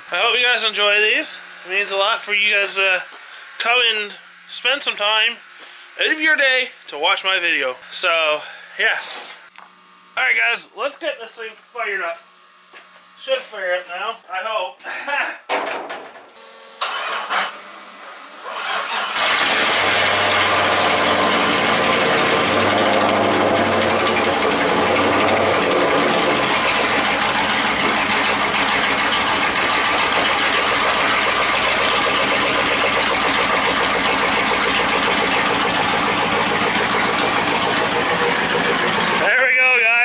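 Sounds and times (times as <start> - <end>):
engine cranking and idling: 16.8 - 17.6, 18.4 - 40.0.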